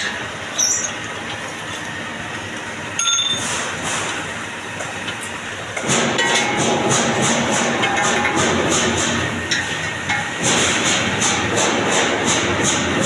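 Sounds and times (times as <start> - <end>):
metal lathe running: 0.0 - 13.0
metallic ring with squealing: 0.6 - 1.0, 3.0 - 3.4.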